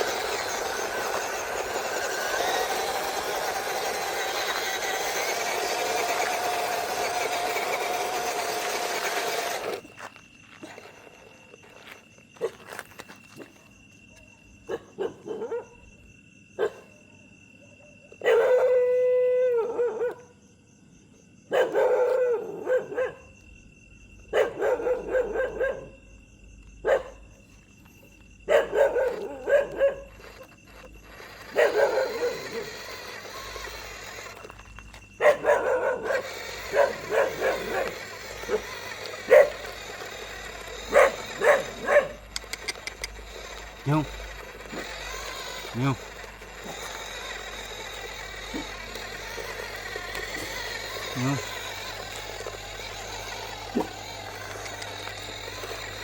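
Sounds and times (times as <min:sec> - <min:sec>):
dog howling: 0:18.3 - 0:20.3
dog calling: 0:28.5 - 0:30.5, 0:31.2 - 0:34.4, 0:35.2 - 0:55.6.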